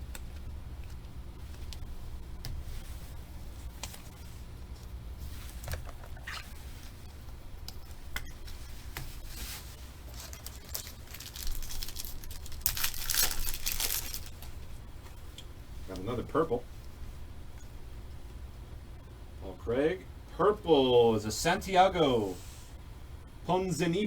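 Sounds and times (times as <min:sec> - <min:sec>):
steady low hum: 0:00.0 - 0:24.0
foil pack tearing and crinkling: 0:10.0 - 0:14.6.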